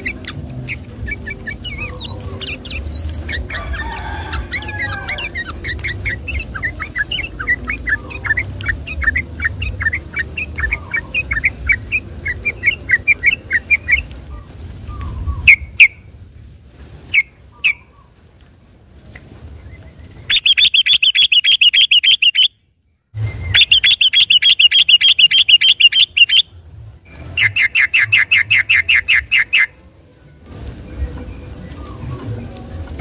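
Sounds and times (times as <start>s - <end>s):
bird singing rapid trills: 20.3s - 22.6s, 23.6s - 26.5s.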